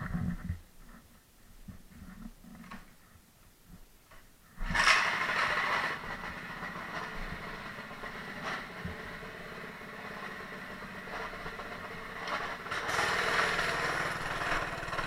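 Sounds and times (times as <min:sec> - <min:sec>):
mini bike engine idling: 0:04.6 - 0:15.0.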